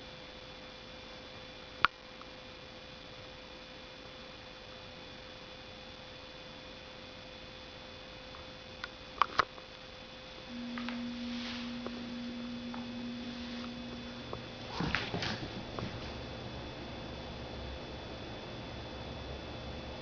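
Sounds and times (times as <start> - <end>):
faint electrical hum: 0.0 - 20.0
loud low hum: 10.4 - 20.0.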